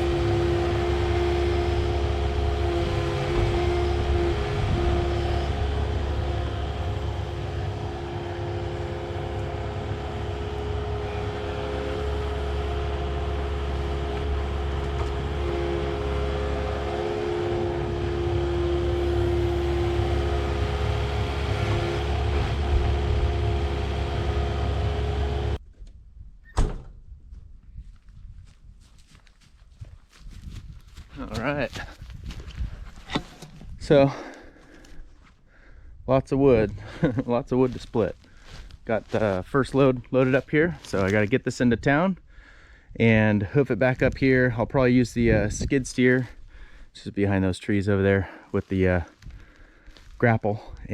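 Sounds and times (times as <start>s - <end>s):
heavy equipment engine rumbling: 0.0s - 25.6s.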